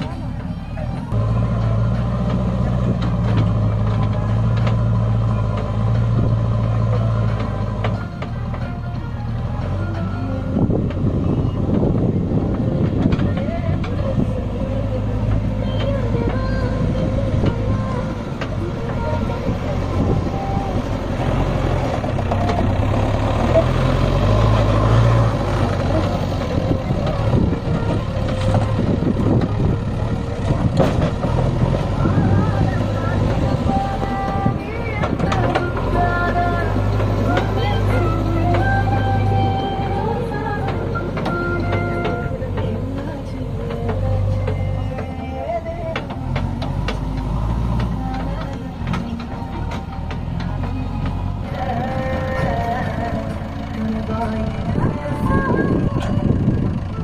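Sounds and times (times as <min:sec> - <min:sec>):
diesel tractor engine running: 0:00.0 - 0:57.0
sharp knocks and clatter: 0:30.7 - 0:31.7.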